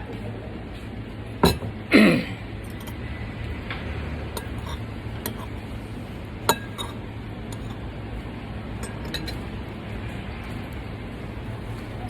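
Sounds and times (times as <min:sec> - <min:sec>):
low background hum: 0:00.0 - 0:12.0
cutlery clinking against dishes: 0:01.4 - 0:01.7, 0:04.4 - 0:05.6, 0:06.5 - 0:07.8, 0:08.8 - 0:09.5.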